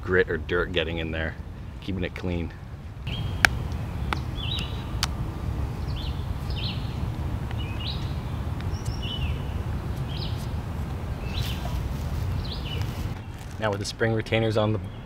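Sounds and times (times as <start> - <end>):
low outdoor rumble: 0.0 - 14.8
small bird chirping: 3.1 - 5.1, 5.8 - 10.6, 11.2 - 13.6.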